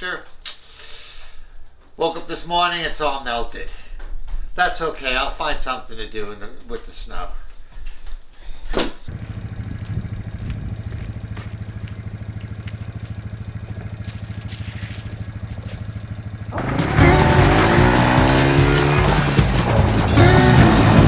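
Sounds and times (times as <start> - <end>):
quad engine idling: 9.1 - 21.0
loud music: 16.6 - 21.0.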